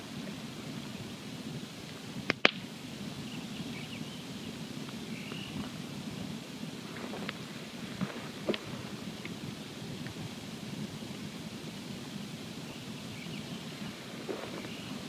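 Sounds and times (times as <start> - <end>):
campfire flame rushing and crackling: 0.0 - 15.0
loud double pop of fire: 2.3 - 2.7.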